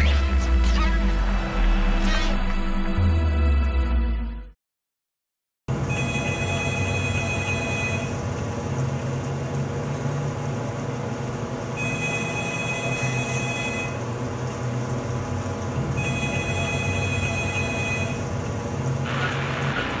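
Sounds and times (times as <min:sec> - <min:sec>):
telephone ringing: 0:05.9 - 0:08.1, 0:11.8 - 0:14.0, 0:16.0 - 0:18.2.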